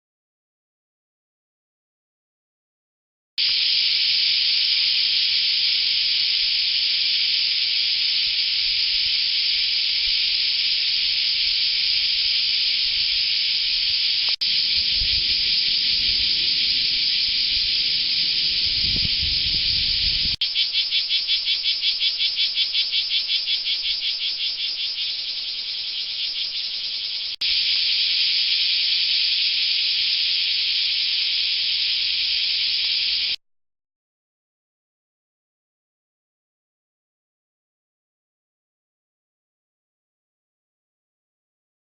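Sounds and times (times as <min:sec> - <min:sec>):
cicadas buzzing: 0:03.4 - 0:33.4
low rumble: 0:14.4 - 0:20.4.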